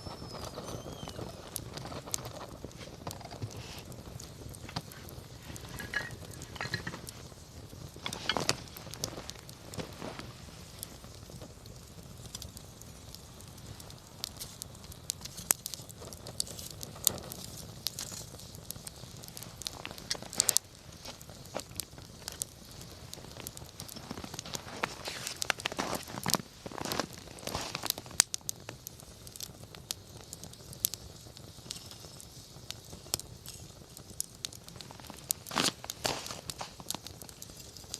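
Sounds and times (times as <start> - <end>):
campfire crackling and popping: 0.0 - 37.9
soft steady hiss: 0.0 - 37.9.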